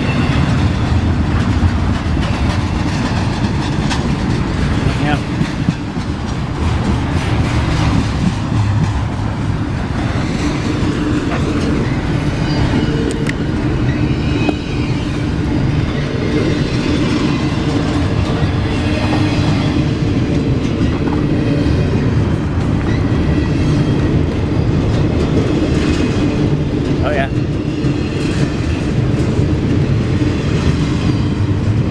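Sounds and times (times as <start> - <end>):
train rumbling past: 0.0 - 31.9
wheels clickety-clack: 0.0 - 31.9.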